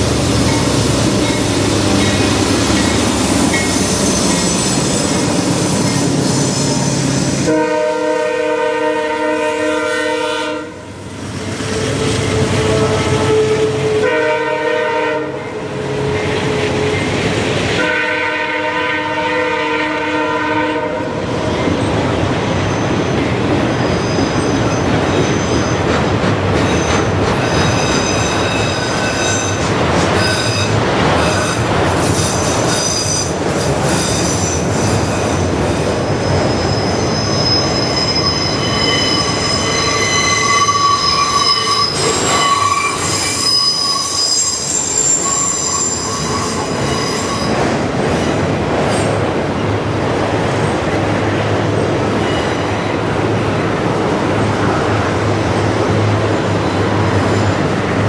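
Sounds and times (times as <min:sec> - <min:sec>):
train rumbling past: 0:00.0 - 0:58.0
high-pitched wheel squeal: 0:03.5 - 0:07.2, 0:36.2 - 0:47.6
train air horn blasts: 0:07.4 - 0:10.9, 0:12.2 - 0:16.9, 0:17.8 - 0:21.2.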